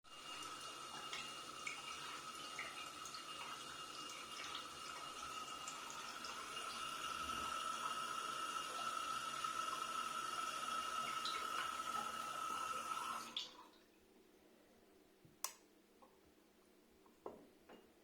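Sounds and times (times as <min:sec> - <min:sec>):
water tap dripping: 0:00.1 - 0:13.6.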